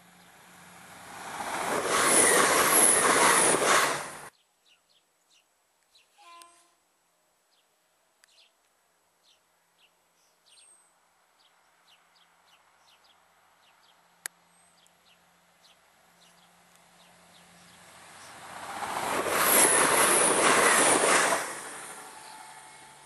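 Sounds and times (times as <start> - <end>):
faint small bird chirps: 4.4 - 6.8.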